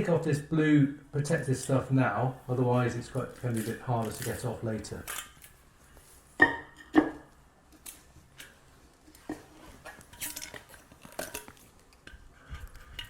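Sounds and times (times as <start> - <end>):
plastic film crinkling: 2.7 - 6.2.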